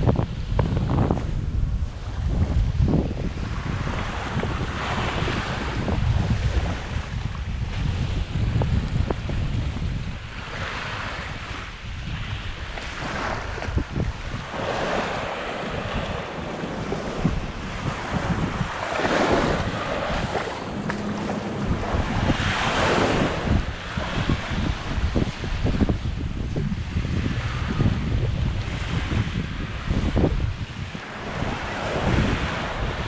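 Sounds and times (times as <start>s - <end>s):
wind buffeting microphone: 0.0s - 33.0s
small waves breaking on sand: 12.3s - 25.8s.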